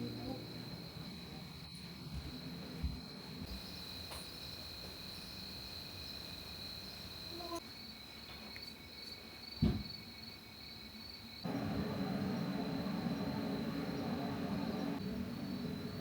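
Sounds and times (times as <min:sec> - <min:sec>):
crickets chirring: 0:00.0 - 0:16.0
thump: 0:09.6 - 0:09.9
rushing noise: 0:11.4 - 0:16.0.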